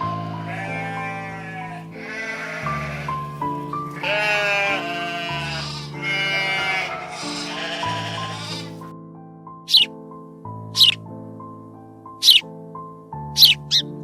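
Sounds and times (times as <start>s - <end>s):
background music: 0.0s - 14.0s
wavering animal calls: 0.1s - 8.8s, 9.7s - 9.9s.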